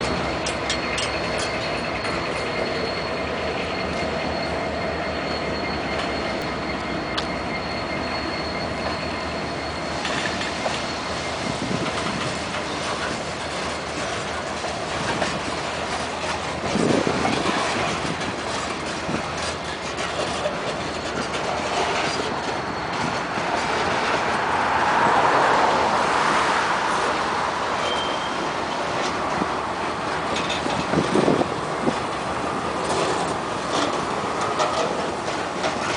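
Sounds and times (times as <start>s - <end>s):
freight train wheels clacking: 0.0s - 35.9s
high wheel squeal: 0.0s - 35.9s.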